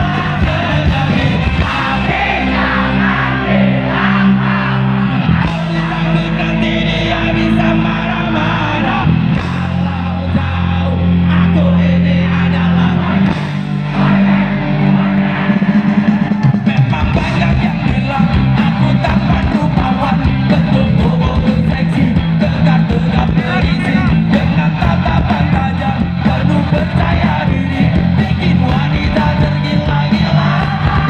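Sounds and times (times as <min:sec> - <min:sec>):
live band with singer: 0:00.0 - 0:31.0.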